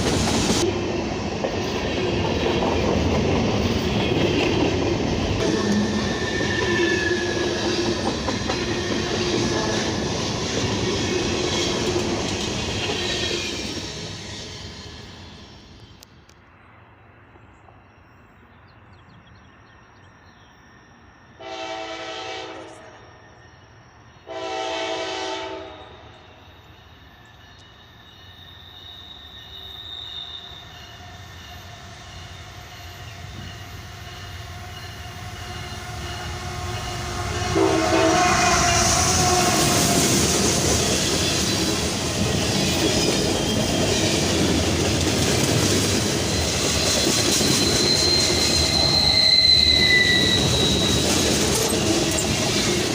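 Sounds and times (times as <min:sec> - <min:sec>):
steel wheels on rails: 0:00.0 - 0:16.3, 0:26.1 - 0:52.9
train passing rumble: 0:00.0 - 0:29.6, 0:30.3 - 0:52.9
faint high squeal: 0:17.4 - 0:41.8, 0:46.2 - 0:52.8
locomotive air horn: 0:21.4 - 0:23.0, 0:24.3 - 0:26.2, 0:35.9 - 0:40.2.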